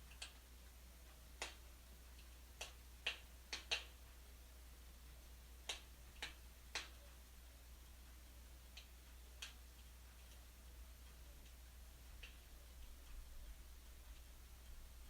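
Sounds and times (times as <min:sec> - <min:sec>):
faint steady hum: 0:00.0 - 0:15.0
wood fire crackling: 0:08.6 - 0:15.0.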